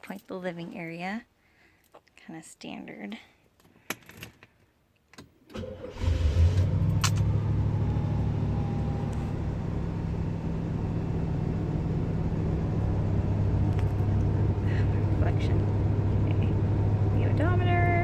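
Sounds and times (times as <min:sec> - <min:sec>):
motorhome engine starting and idling: 0:05.5 - 0:18.0.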